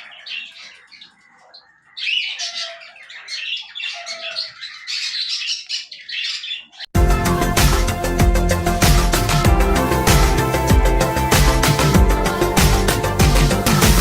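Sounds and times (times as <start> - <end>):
budgerigars chirping and chattering: 0.0 - 6.9.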